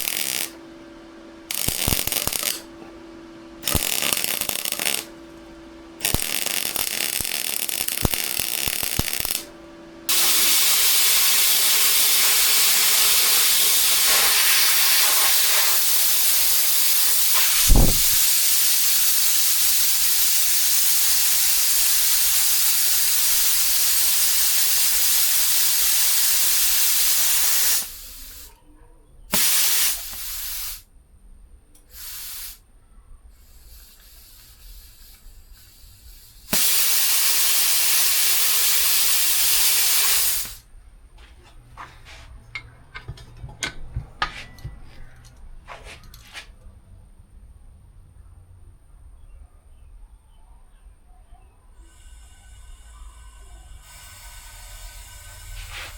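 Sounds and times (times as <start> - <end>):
welding arc sizzling: 0.0 - 28.5, 29.3 - 30.8, 31.8 - 32.6, 33.4 - 40.7, 51.9 - 55.9.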